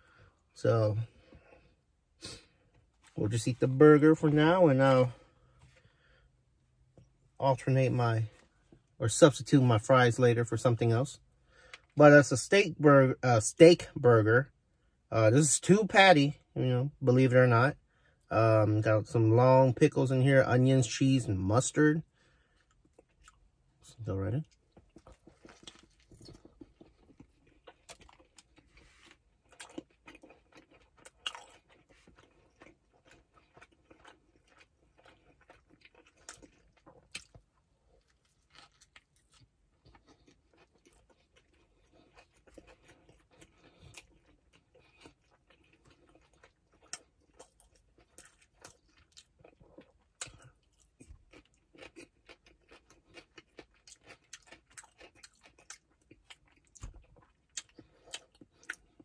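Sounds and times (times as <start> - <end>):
faint chewing: 24.4 - 59.0.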